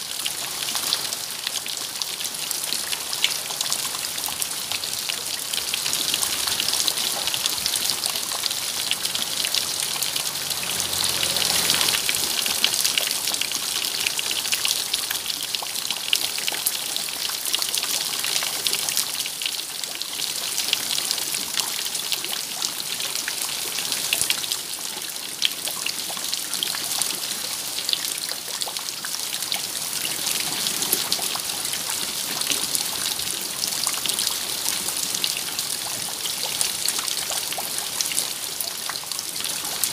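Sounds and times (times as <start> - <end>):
rain hiss: 0.0 - 17.4
water trickling: 2.8 - 17.2.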